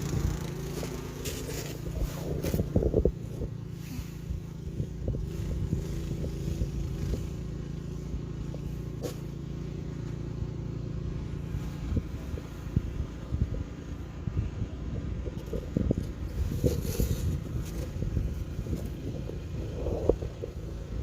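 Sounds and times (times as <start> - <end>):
engine running: 0.0 - 21.0
short knocks and scrapes: 16.3 - 18.0.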